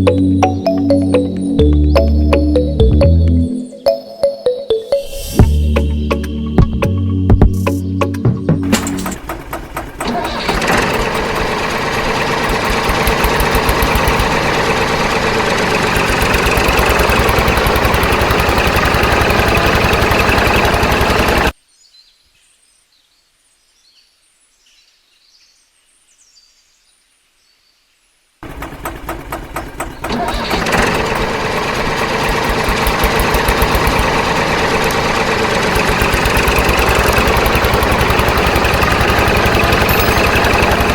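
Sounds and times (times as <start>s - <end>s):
small motor rattling: 8.7s - 21.6s, 28.4s - 40.9s.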